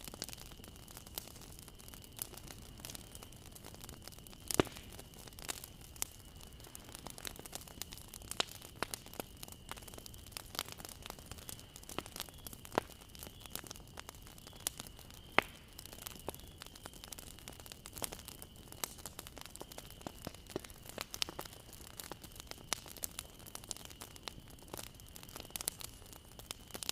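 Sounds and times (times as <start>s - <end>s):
bonfire crackling and popping: 0.0s - 26.9s
low fire hiss: 0.0s - 26.9s.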